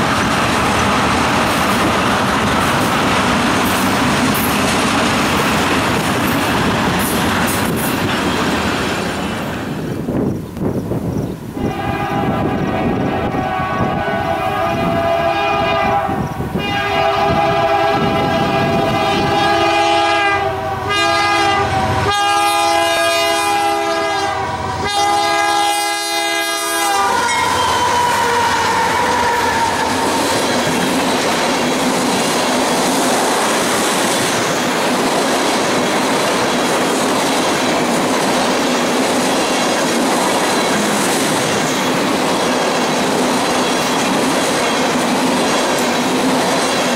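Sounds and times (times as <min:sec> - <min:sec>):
wheels clacking on rails: 0:00.0 - 0:14.7, 0:26.5 - 0:46.9
train rumbling past: 0:00.0 - 0:46.9
locomotive horn blasts: 0:11.6 - 0:30.4.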